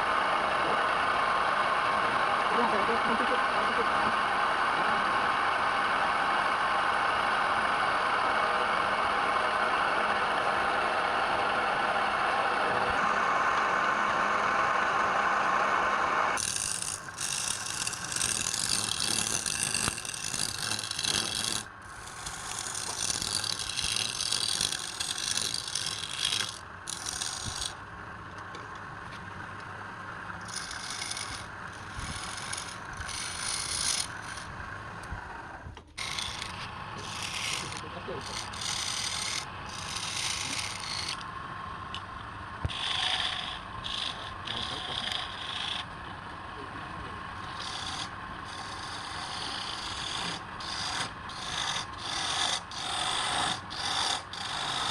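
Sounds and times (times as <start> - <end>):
wood-turning machine running: 0.0 - 54.9
harsh scraping of wood: 16.4 - 41.3, 42.6 - 46.3, 47.0 - 54.9.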